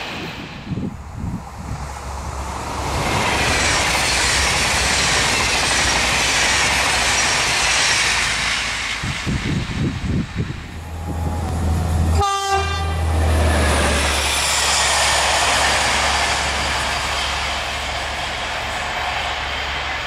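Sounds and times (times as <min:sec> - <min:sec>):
wind buffeting microphone: 0:00.0 - 0:12.2
train wheels rushing on rails: 0:00.0 - 0:20.0.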